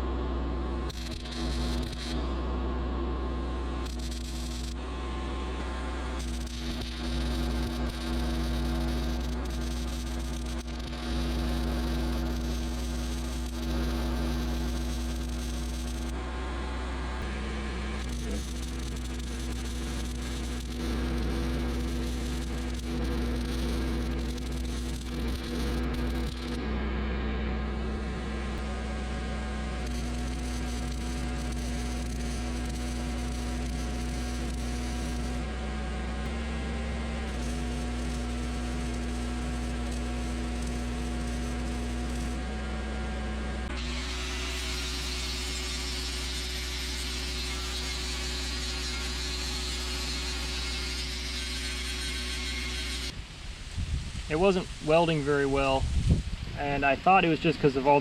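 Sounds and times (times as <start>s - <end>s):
generator humming: 0.0s - 53.5s
steady buzzing: 0.0s - 55.2s
wind blowing: 53.2s - 57.2s.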